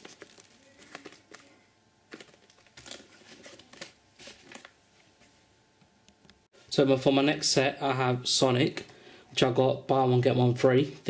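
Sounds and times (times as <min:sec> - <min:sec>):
packaging crinkling: 0:00.0 - 0:04.8.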